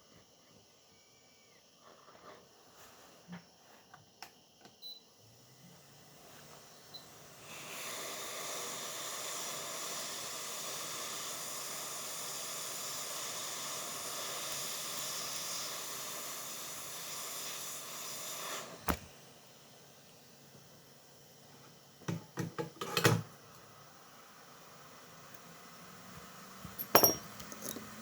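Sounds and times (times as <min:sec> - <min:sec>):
blown air hissing: 0:05.7 - 0:20.2.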